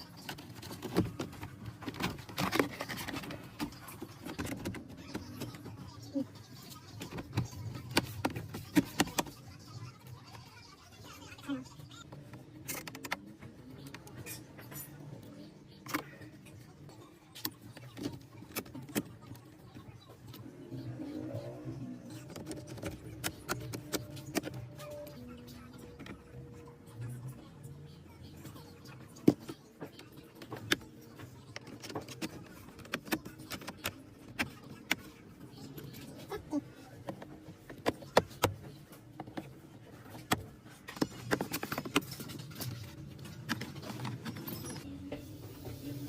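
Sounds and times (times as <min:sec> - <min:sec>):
car parts and tools clicking: 0:00.0 - 0:05.9, 0:22.0 - 0:26.4, 0:28.9 - 0:36.2, 0:36.9 - 0:46.0.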